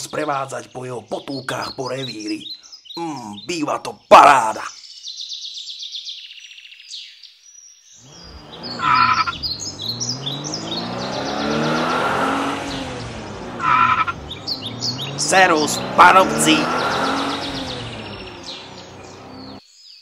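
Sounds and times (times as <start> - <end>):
birds chirping: 0.0 - 7.2, 7.8 - 20.0
off-road vehicle engine: 8.1 - 19.6.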